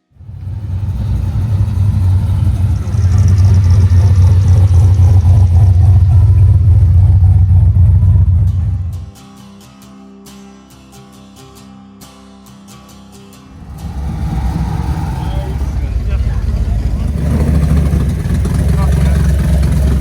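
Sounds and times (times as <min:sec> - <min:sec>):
car engine rumbling: 0:00.0 - 0:09.1, 0:13.5 - 0:20.0.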